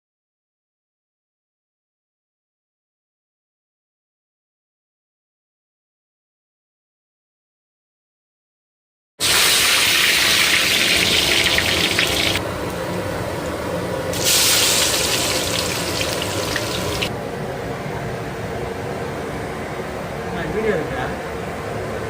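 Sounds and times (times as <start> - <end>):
water running from tap: 9.2 - 12.4, 14.2 - 17.1.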